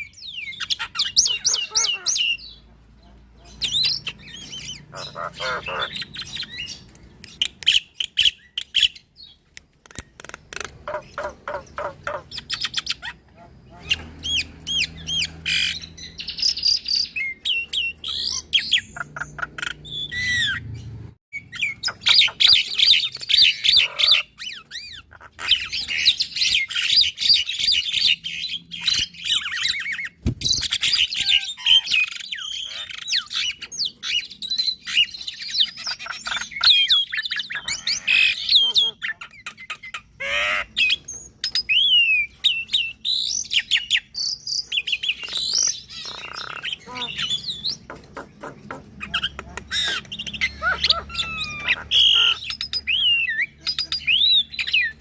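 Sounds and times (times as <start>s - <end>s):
birds singing whistles and chatter: 0.0s - 55.0s.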